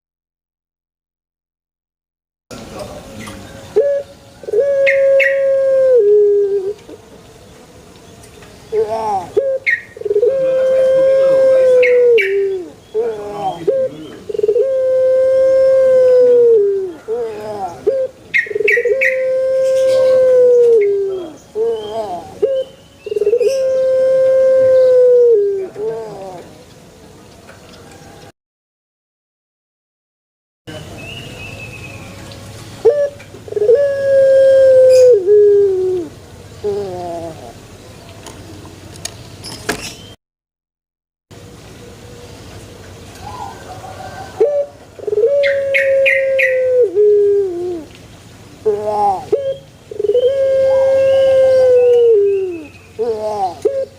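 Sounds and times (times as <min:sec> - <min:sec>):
dove calling: 0:03.2 - 0:07.1, 0:08.7 - 0:26.6, 0:32.8 - 0:37.6, 0:43.2 - 0:47.9, 0:48.6 - 0:53.9.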